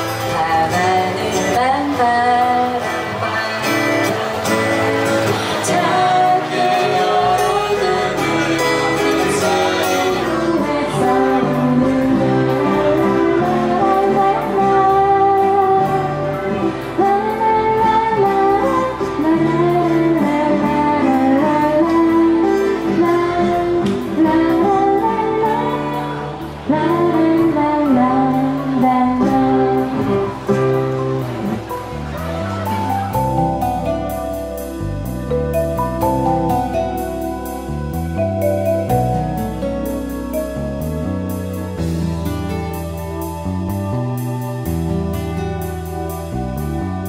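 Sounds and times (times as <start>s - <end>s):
woman singing lead: 0.0s - 35.0s
electric keyboard: 0.0s - 47.0s
strummed acoustic guitar: 0.0s - 47.0s.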